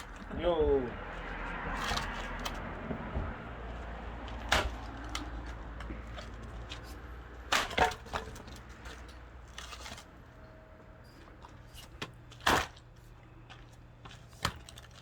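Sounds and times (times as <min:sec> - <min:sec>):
wood splintering: 0:01.6 - 0:02.6, 0:04.2 - 0:06.8, 0:07.4 - 0:08.9
axe striking log: 0:04.4 - 0:05.2, 0:07.5 - 0:08.3, 0:12.4 - 0:12.8.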